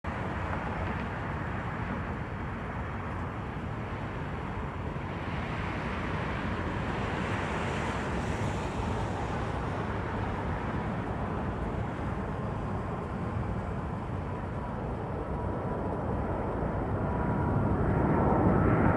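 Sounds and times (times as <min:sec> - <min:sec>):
jet engines rumbling with whine: 0:00.1 - 0:18.9.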